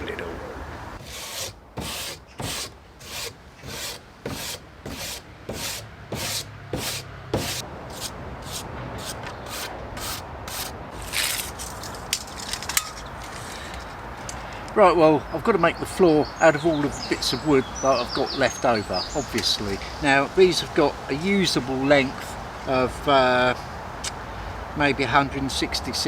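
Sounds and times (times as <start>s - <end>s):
scrubbing a wooden board: 1.0s - 10.7s.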